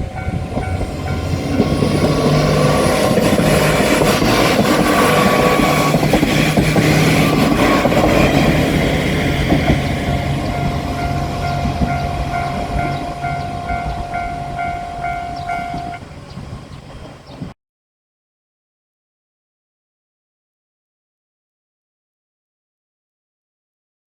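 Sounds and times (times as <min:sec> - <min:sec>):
level crossing bell clanging: 0:00.0 - 0:16.1
diesel railcar rumbling past: 0:00.0 - 0:17.5.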